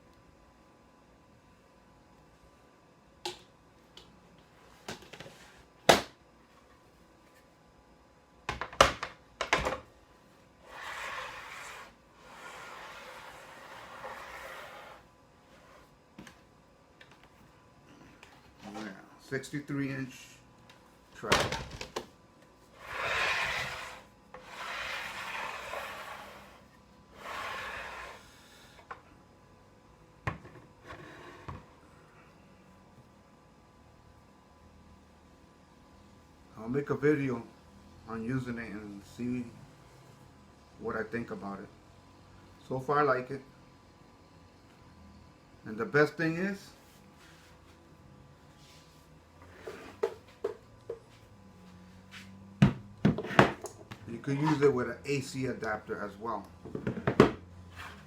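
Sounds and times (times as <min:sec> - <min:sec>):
saw rail scraping: 0:10.6 - 0:15.9, 0:22.8 - 0:28.4.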